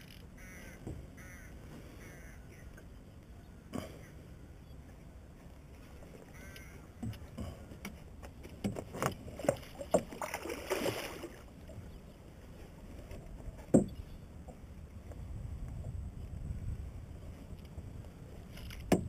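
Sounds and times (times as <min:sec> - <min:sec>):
water splashing around boat: 0:05.3 - 0:19.0.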